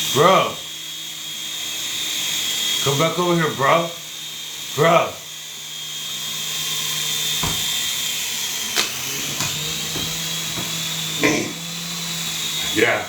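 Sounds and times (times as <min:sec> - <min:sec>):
toy helicopter rotor whirring: 0:00.0 - 0:13.0
short knocks: 0:07.4 - 0:07.8, 0:09.4 - 0:10.8.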